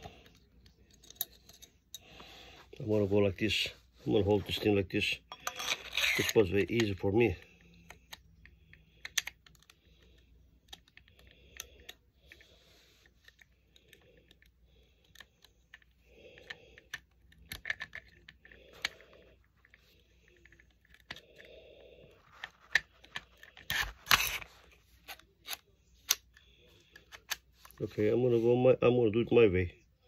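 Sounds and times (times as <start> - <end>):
metal pistol parts clicking: 5.3 - 12.4.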